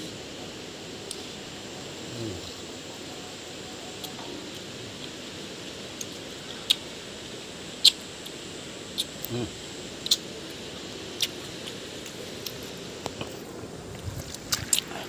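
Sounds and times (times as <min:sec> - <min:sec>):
steady outdoor hiss: 0:00.0 - 0:15.0
man humming: 0:01.9 - 0:02.7, 0:09.2 - 0:09.6
man chewing: 0:04.0 - 0:06.9, 0:07.8 - 0:15.0
mouth clicks: 0:08.9 - 0:10.3.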